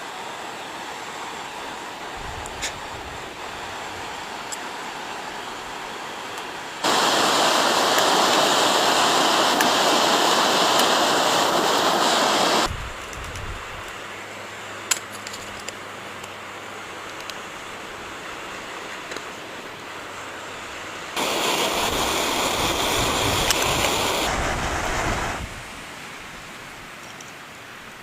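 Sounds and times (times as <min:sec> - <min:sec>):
steady rushing noise: 0:00.0 - 0:13.9, 0:18.7 - 0:26.7.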